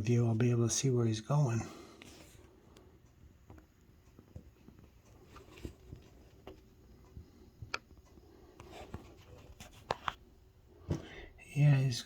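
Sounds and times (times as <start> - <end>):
faint clicks and taps: 2.0 - 11.2.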